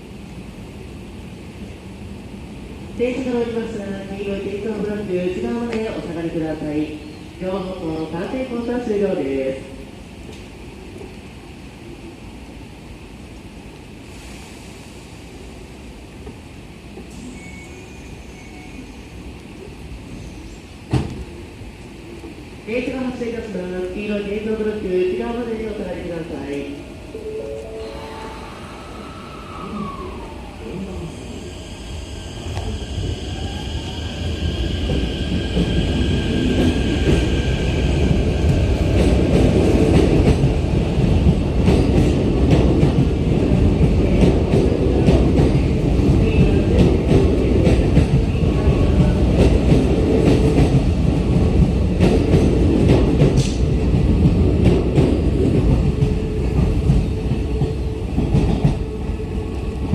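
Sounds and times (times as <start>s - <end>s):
train rumble: 18.4s - 59.9s.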